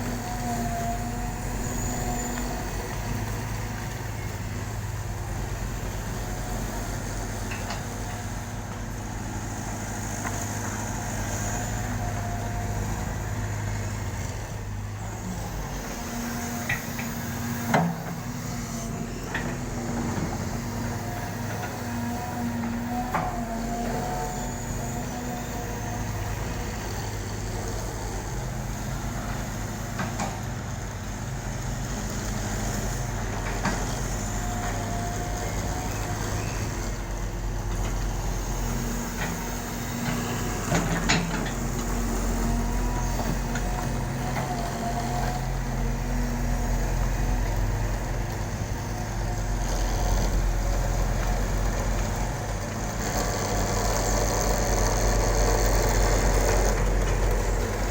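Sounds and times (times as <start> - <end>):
hydraulic whine: 0.0 - 30.4
excavator diesel engine running: 0.0 - 57.9.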